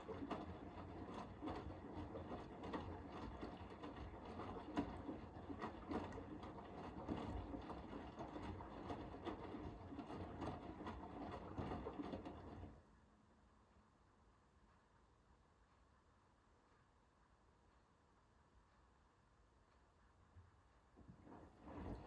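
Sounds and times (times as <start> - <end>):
laundry and water sloshing: 0.0 - 12.7, 21.0 - 22.0
washing machine drum turning: 0.0 - 12.8, 21.0 - 22.0.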